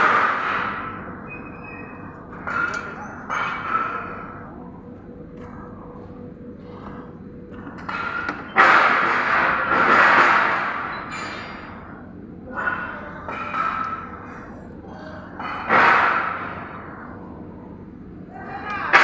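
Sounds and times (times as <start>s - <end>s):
crashing and clattering: 2.2s - 4.4s, 6.8s - 11.6s.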